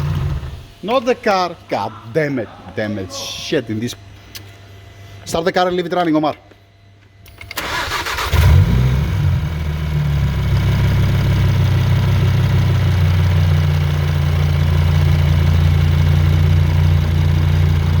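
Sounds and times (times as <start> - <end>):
car engine starter cranking: 0.0 - 0.7, 7.3 - 9.3
car engine idling: 0.0 - 0.8, 7.6 - 18.0.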